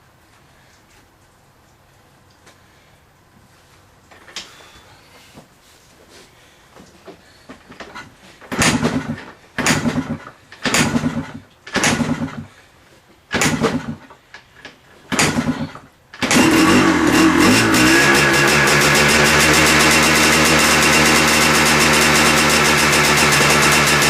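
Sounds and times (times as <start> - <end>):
motorcycle engine kick-starting: 7.8 - 12.5, 13.3 - 14.1, 15.1 - 24.0
motorcycle engine running: 16.3 - 24.0.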